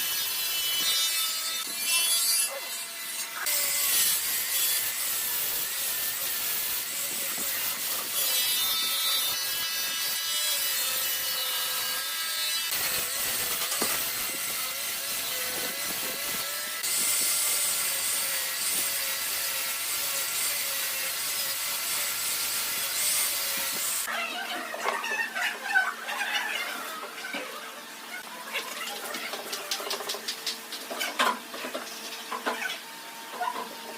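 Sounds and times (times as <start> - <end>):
power tool cutting wood: 0.0 - 25.4.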